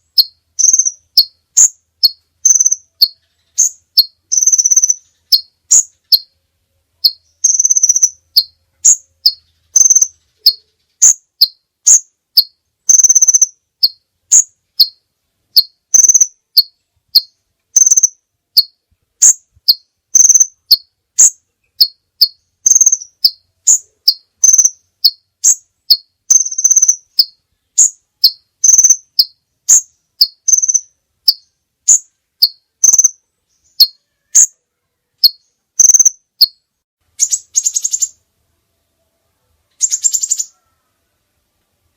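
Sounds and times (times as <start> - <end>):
high-pitched animal calls: 7.0 - 15.0, 15.6 - 36.6, 39.8 - 41.0.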